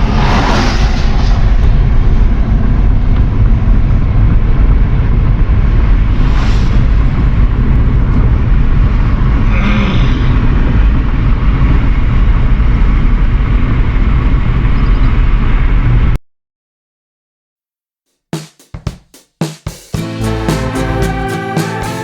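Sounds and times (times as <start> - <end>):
road and wind noise: 0.0 - 16.2.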